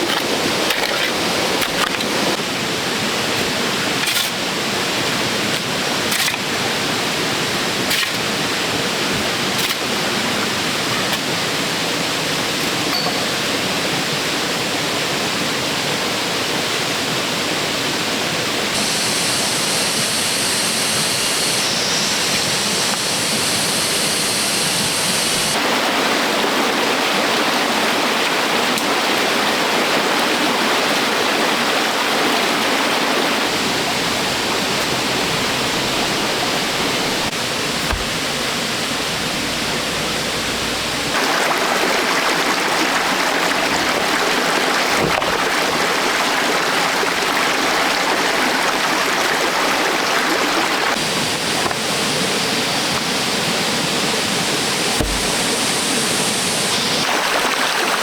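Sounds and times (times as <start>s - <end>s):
running water rushing: 0.0s - 58.0s
high hiss: 18.7s - 25.7s, 51.0s - 58.0s
sharp knocks: 37.8s - 38.2s, 55.0s - 55.5s.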